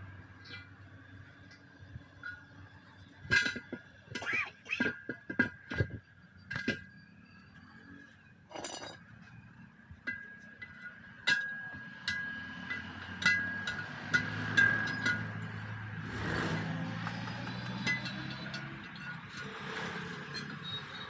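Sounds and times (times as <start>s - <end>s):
metal tools striking steel: 10.1s - 15.8s, 16.5s - 21.0s.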